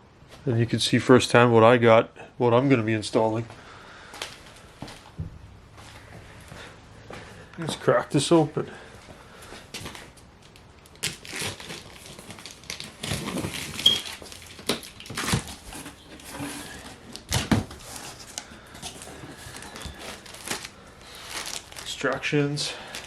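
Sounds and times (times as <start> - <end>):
contents rustling and scraping: 9.4 - 23.0
packing paper crinkling: 9.7 - 23.0.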